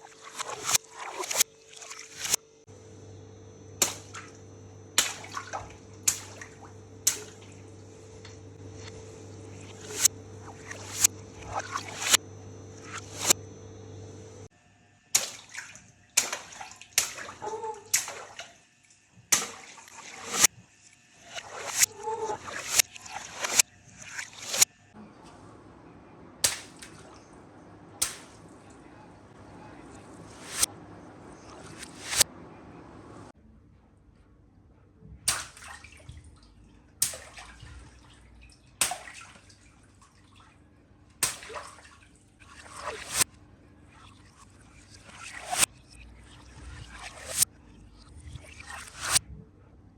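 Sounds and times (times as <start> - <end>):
water splashing: 0.0 - 2.4, 3.8 - 13.4, 15.2 - 18.6, 19.4 - 20.5, 26.2 - 32.2, 35.4 - 40.5, 41.2 - 43.2, 43.9 - 47.4
water balloons popping: 5.0 - 7.5.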